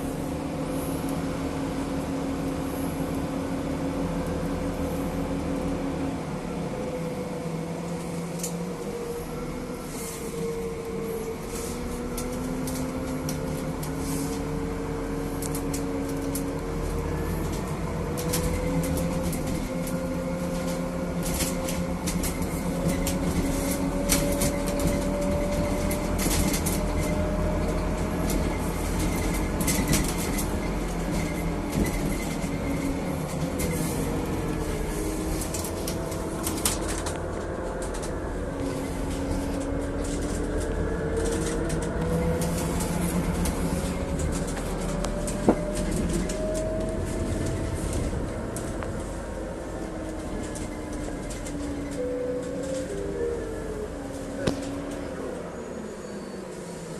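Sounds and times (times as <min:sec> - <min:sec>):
bus engine running: 0:00.0 - 0:56.9
rattles and knocks from bus body: 0:15.4 - 0:52.9.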